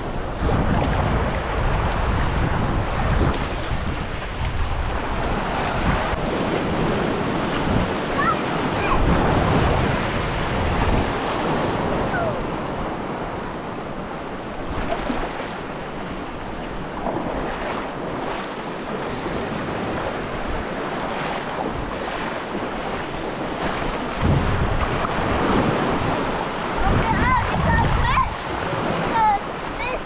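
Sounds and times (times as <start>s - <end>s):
ocean surf washing on shore: 0.0s - 30.0s
wind buffeting microphone: 0.0s - 30.0s.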